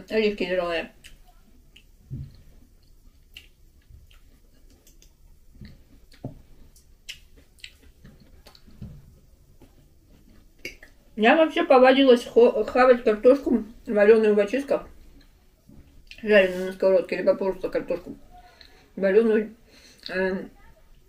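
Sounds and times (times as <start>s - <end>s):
person chewing quietly: 0.9s - 11.2s, 15.0s - 16.7s, 18.4s - 19.0s
fork clicks and mouth smacks: 3.3s - 8.7s.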